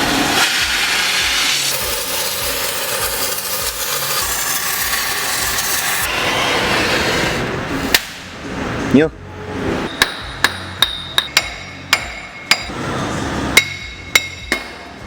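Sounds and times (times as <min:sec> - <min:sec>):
power tool rasping: 0:00.1 - 0:07.6.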